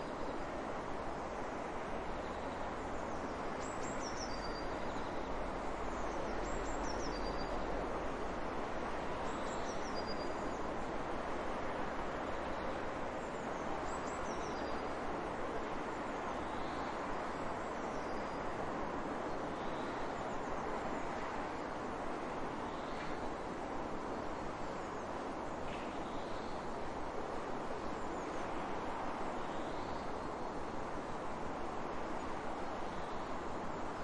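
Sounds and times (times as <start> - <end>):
small bird singing: 3.6 - 5.2.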